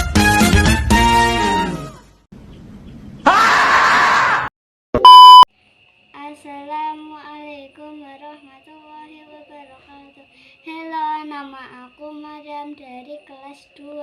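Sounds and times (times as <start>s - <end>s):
loud electronic beep: 5.0s - 5.5s
child singing softly: 6.1s - 14.0s.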